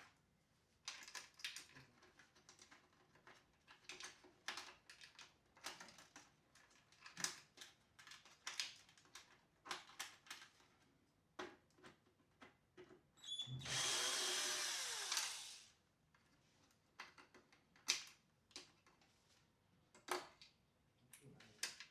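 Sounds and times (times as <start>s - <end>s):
handheld power tool spinning: 13.5s - 15.7s.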